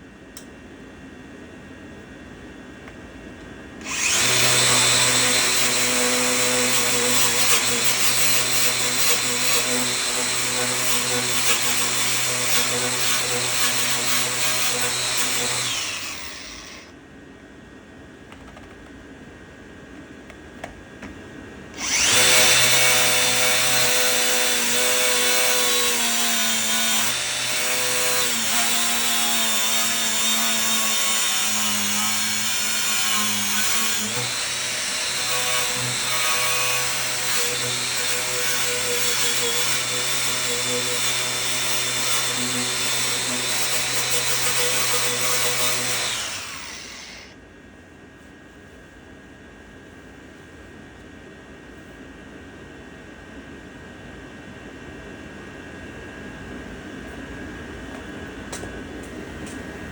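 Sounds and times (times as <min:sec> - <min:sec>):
electric power tool running: 0:03.8 - 0:16.9, 0:21.8 - 0:47.3.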